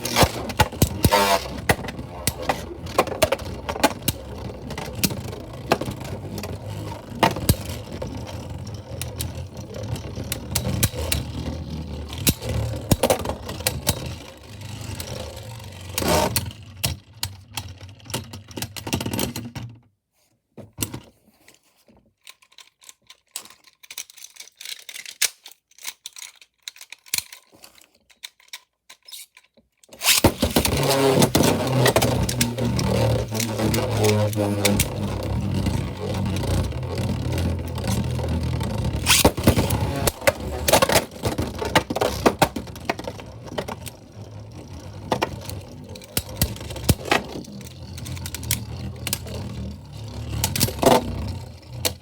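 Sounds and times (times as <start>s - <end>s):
spinning tops whirring: 0.0s - 13.0s, 30.0s - 42.6s
light clicks and rattles: 20.8s - 52.0s
spinning tops clashing clicks: 30.0s - 31.5s.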